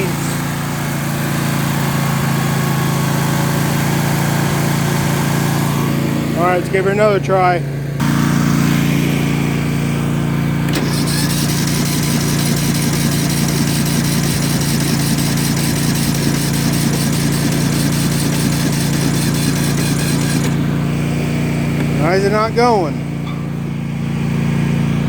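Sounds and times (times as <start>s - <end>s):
small engine cranking on starter: 10.6s - 20.8s.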